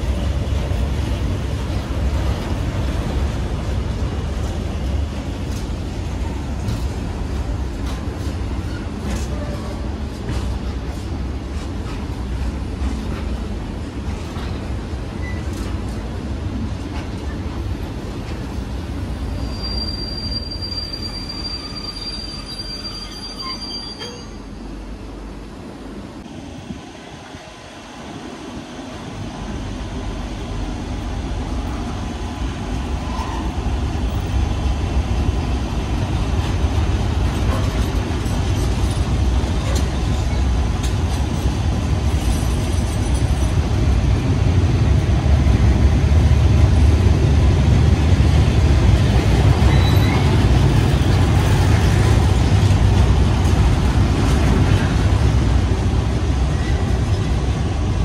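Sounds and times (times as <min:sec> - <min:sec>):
train wheels rumbling on rail: 0:00.0 - 0:58.0
wheel squeals: 0:19.3 - 0:24.6, 0:49.6 - 0:50.4.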